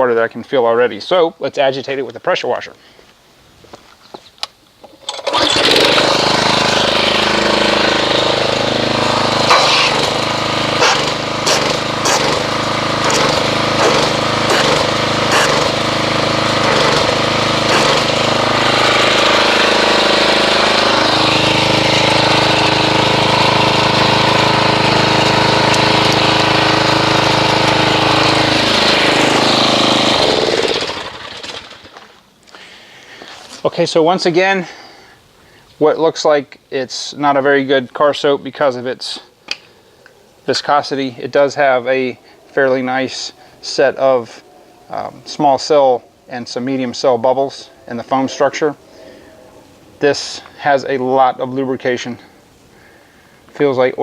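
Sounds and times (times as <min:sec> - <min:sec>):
pressure washer running: 0:05.0 - 0:32.1.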